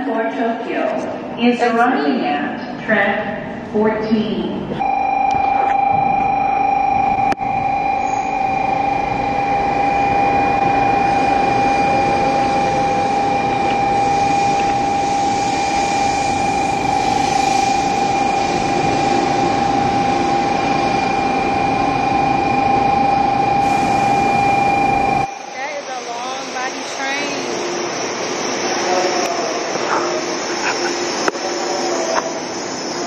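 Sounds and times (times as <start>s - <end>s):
constant high tone: 4.8s - 28.2s
train rushing past: 7.8s - 33.0s.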